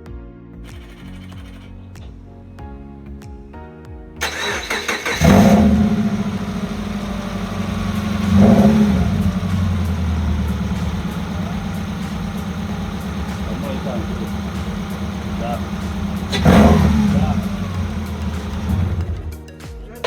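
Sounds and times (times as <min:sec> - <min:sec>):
background music: 0:00.0 - 0:20.0
car engine starting and idling: 0:04.2 - 0:19.4.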